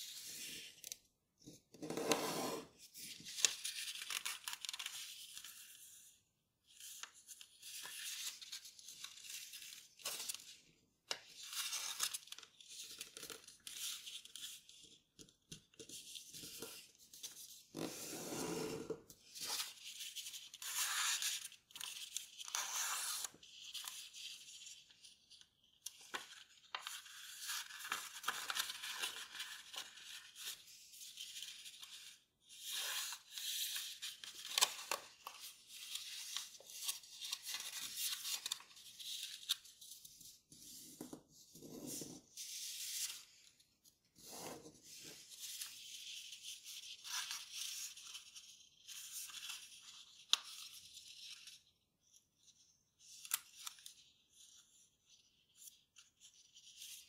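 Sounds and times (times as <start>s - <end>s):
paper rustling and crinkling: 2.9s - 5.8s, 25.8s - 32.0s, 32.8s - 40.3s.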